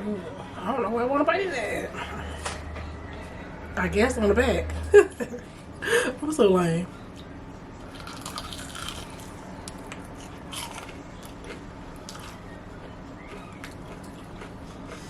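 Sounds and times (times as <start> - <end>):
person chewing food: 7.1 - 15.0.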